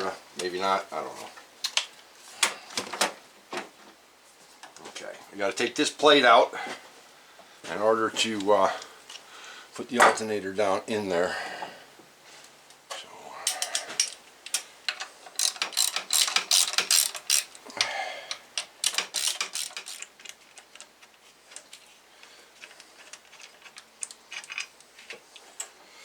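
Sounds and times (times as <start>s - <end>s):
ratchet wrench clicking: 15.3s - 17.6s, 18.3s - 20.2s.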